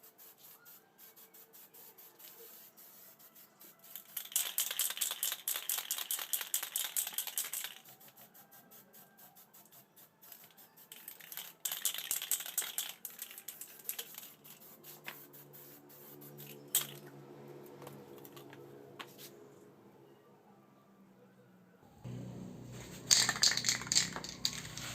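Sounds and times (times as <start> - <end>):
faint music: 0.0 - 24.9
spray can hissing: 3.3 - 8.5, 9.4 - 17.0, 22.1 - 24.9
rapid clicking rattles: 4.0 - 7.9, 10.9 - 14.3, 23.0 - 24.9.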